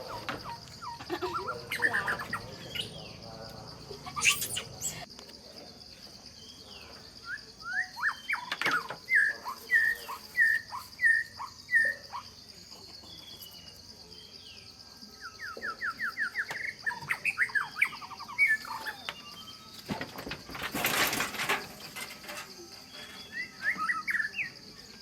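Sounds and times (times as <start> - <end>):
bird trill: 0.0 - 5.1, 6.4 - 12.4, 15.2 - 20.4, 22.8 - 25.0
insect drone: 0.0 - 25.0
bird whistling: 4.1 - 5.0, 23.2 - 24.6.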